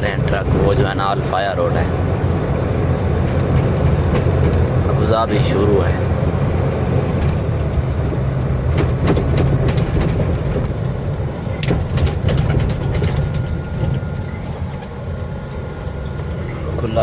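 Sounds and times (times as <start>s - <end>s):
truck engine and road drone: 0.0s - 17.0s
clicks and rattles in cab: 3.2s - 4.8s, 7.1s - 10.9s, 11.5s - 15.0s.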